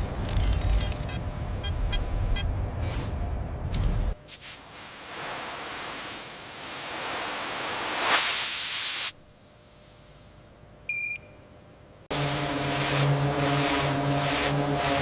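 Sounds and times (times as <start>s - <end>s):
rushing hiss: 4.3s - 10.1s
motor humming: 12.1s - 15.0s.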